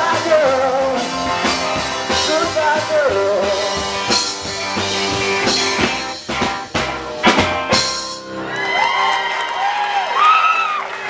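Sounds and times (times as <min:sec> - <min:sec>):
rock and roll band playing: 0:00.0 - 0:10.3
drum hits: 0:03.4 - 0:08.3.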